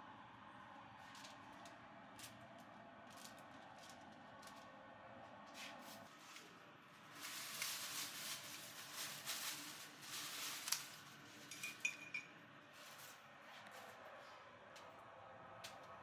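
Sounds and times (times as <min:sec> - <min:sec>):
rustling and scraping: 0:05.4 - 0:14.4
dishes clinking: 0:11.4 - 0:12.4.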